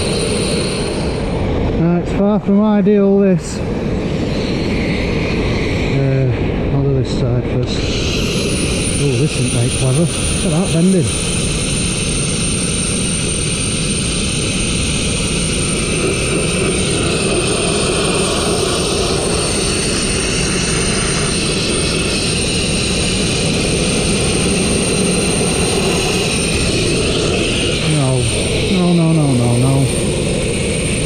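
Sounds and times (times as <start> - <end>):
thin high whine: 0.0 - 31.0
blasting nozzle rushing hiss: 7.7 - 31.0.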